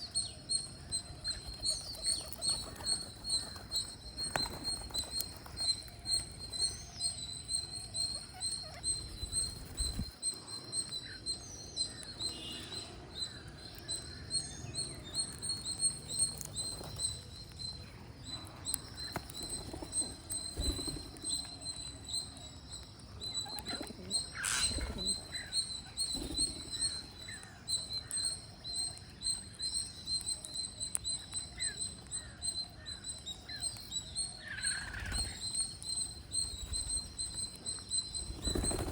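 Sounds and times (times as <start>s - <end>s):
parrots chirping and calling: 1.1s - 10.1s, 23.2s - 27.5s.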